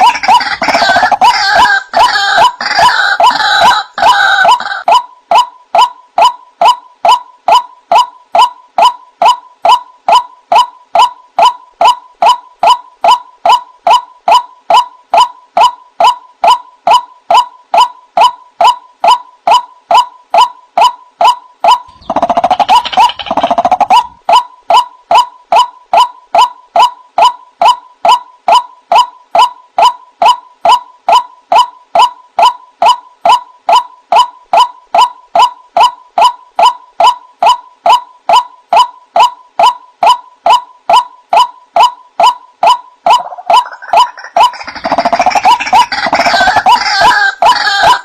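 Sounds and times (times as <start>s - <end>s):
harsh bird calling: 0.0s - 5.0s, 21.7s - 25.7s, 42.6s - 48.0s.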